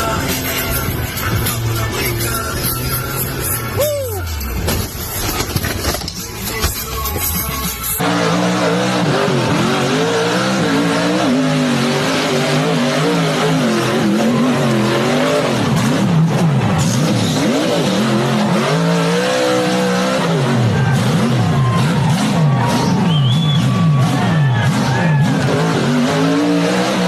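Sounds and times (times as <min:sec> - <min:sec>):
engine revving hard: 0:08.0 - 0:27.0.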